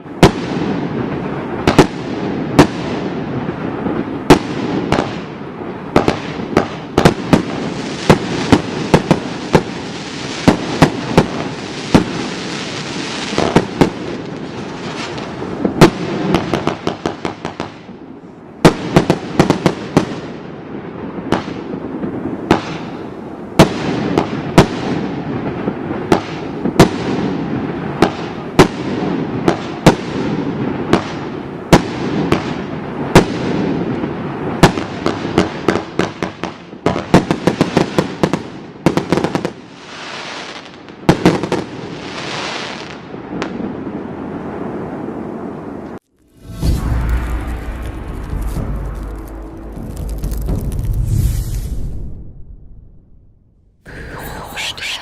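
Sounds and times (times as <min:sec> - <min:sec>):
firework bangs: 0:00.0 - 0:40.4, 0:46.2 - 0:53.2
hissing crackle: 0:46.0 - 0:52.5
continuous rumble: 0:46.2 - 0:51.2.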